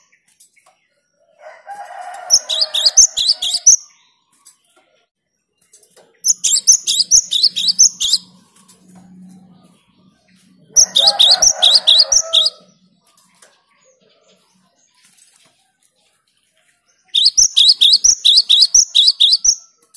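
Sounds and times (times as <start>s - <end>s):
bird chirping rapidly: 2.2s - 3.9s, 6.2s - 8.6s, 10.6s - 12.8s, 17.0s - 19.7s.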